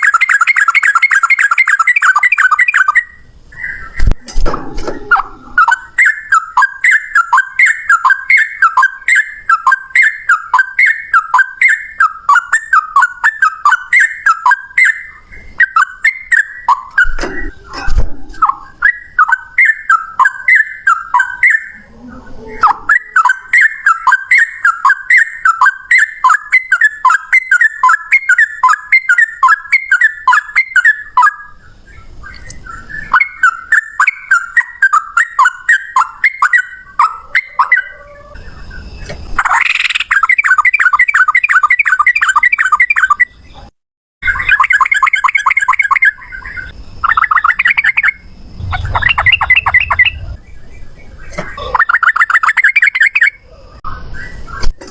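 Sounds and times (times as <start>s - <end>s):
bird singing warbling notes: 0.0s - 43.6s, 44.2s - 54.7s
low rumble: 47.9s - 51.2s.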